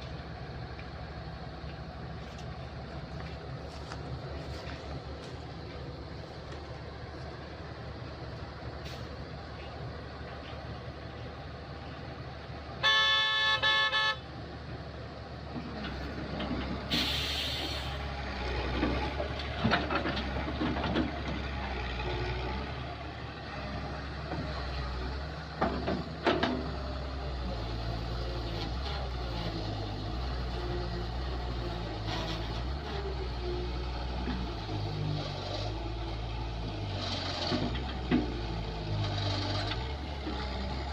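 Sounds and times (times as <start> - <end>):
excavator diesel engine running: 0.0 - 40.9
vehicle horn: 12.8 - 14.3
short hiss: 16.9 - 18.0.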